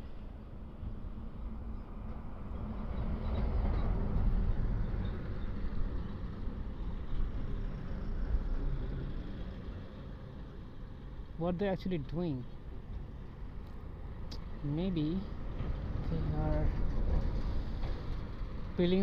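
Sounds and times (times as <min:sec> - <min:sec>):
road noise: 0:00.0 - 0:19.0
wind rumble: 0:12.7 - 0:19.0.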